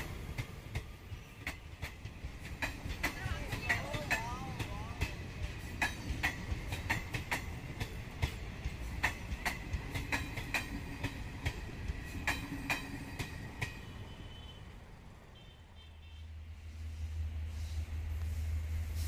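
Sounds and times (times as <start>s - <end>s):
train wheels clicking over rail joints: 0.0s - 14.0s
low train rumble: 0.0s - 19.0s.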